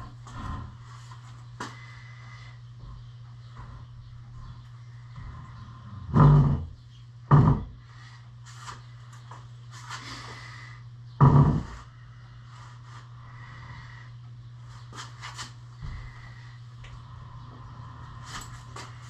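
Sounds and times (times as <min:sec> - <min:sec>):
low hum: 0:00.0 - 0:19.0
heavy thumps: 0:11.2 - 0:11.9.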